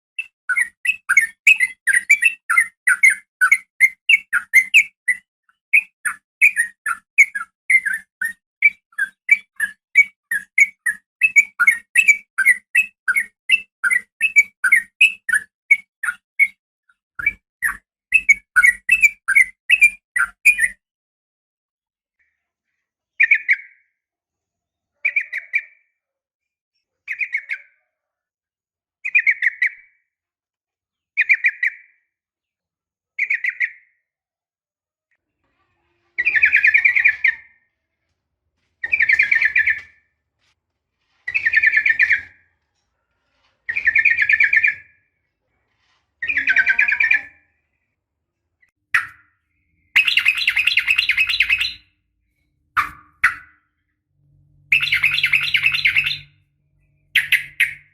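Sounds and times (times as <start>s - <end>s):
bulbul chirps and warbled calls: 0.2s - 16.6s, 17.2s - 20.8s, 50.0s - 51.8s, 52.8s - 53.5s, 54.7s - 56.3s, 57.1s - 57.9s.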